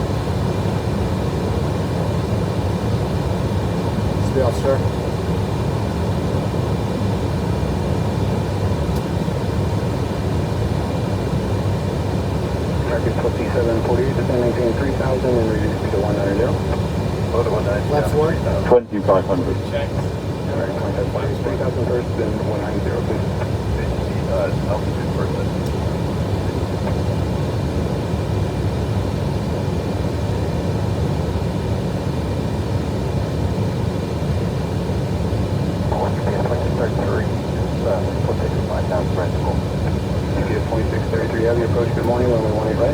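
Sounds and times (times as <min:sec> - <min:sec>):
aircraft engine hum: 0:00.0 - 0:42.9
faint steady whines: 0:00.0 - 0:42.9
rush of airflow and air conditioning: 0:00.0 - 0:42.9.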